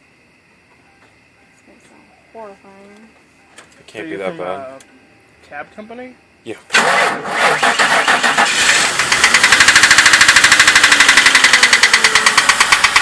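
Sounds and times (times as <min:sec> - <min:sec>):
car engine idling with rapid knocking: 0:06.8 - 0:13.0.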